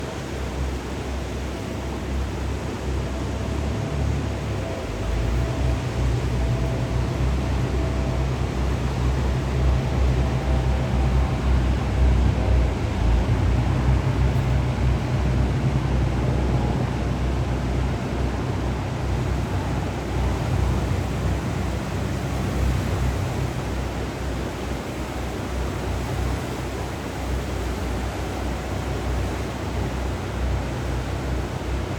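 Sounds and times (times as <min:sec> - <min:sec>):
faint thin engine tone: 0:00.0 - 0:31.9
jet boat engine drone: 0:00.0 - 0:31.9
river water rushing: 0:00.0 - 0:31.9.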